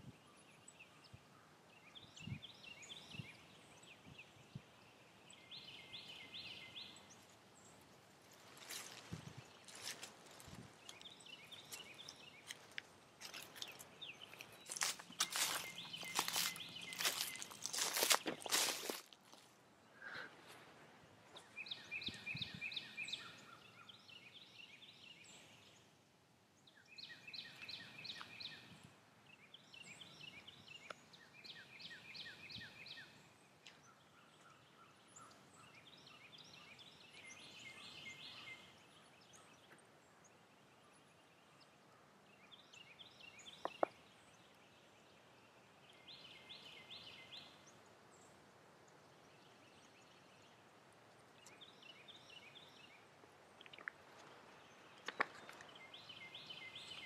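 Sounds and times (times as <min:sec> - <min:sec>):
songbird singing trilled phrases: 0:21.4 - 0:25.2, 0:54.6 - 0:57.0.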